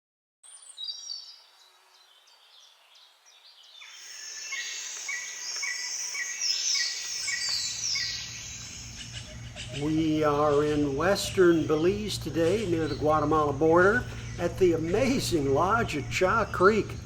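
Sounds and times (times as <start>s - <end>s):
bird chirps: 0.4s - 17.0s
insects chirping: 0.6s - 17.0s
high calls sweeping downward: 3.8s - 10.6s.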